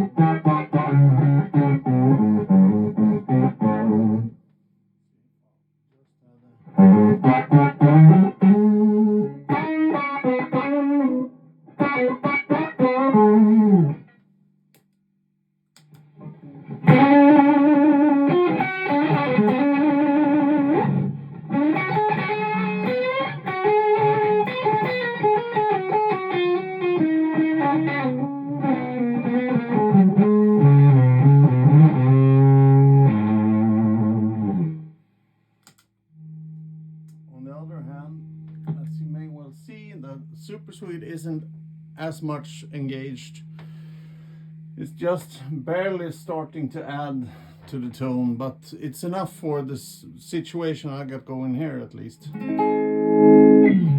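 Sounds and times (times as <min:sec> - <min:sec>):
electric guitar chords: 0:00.0 - 0:04.4, 0:06.7 - 0:14.1, 0:15.8 - 0:34.9, 0:36.1 - 0:37.3, 0:52.3 - 0:53.9.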